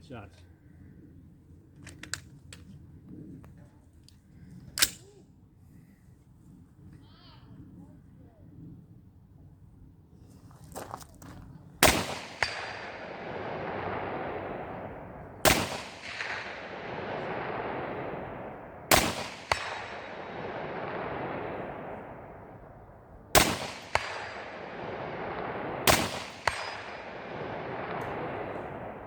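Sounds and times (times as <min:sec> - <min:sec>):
rifle shots: 0:11.8 - 0:29.0
rolling echo: 0:11.8 - 0:29.0.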